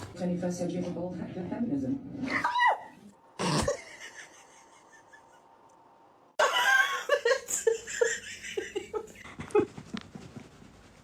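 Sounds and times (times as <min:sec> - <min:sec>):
person laughing: 0:03.4 - 0:05.5, 0:06.4 - 0:09.9.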